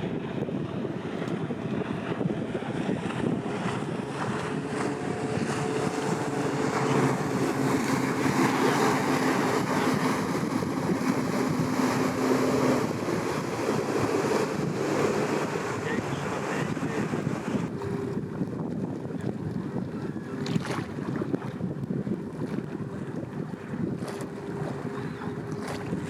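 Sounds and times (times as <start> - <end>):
boat engine droning: 0.0 - 26.0
low engine hum: 0.0 - 26.0
wind buffeting microphone: 0.0 - 26.0.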